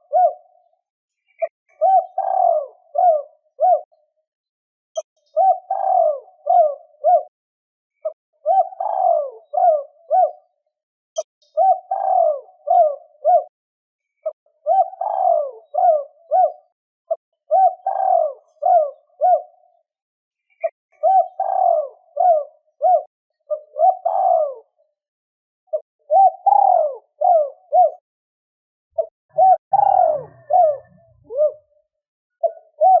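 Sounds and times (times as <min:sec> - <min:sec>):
dove cooing: 0:00.0 - 0:00.7, 0:01.4 - 0:04.0, 0:05.3 - 0:07.4, 0:08.0 - 0:10.6, 0:11.2 - 0:13.6, 0:14.2 - 0:19.8, 0:20.6 - 0:24.8, 0:25.7 - 0:28.0, 0:29.0 - 0:33.0.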